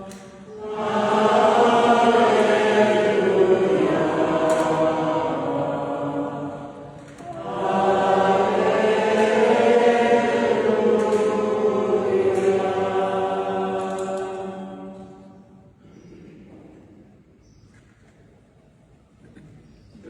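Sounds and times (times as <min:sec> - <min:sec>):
choir singing a slow chant: 0:00.0 - 0:15.9.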